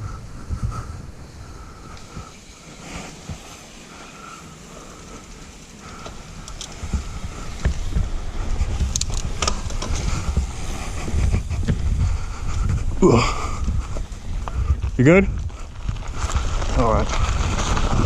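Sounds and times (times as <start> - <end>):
wind buffeting microphone: 0.0 - 3.4, 5.9 - 18.0
bike knocks and rattles: 5.8 - 18.0.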